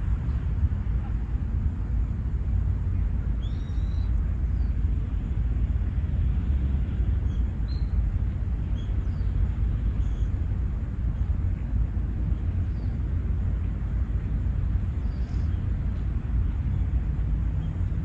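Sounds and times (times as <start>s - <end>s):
steady low rumble: 0.0s - 18.0s
faint high bird chirps: 3.4s - 4.8s, 7.2s - 8.0s, 10.0s - 10.4s.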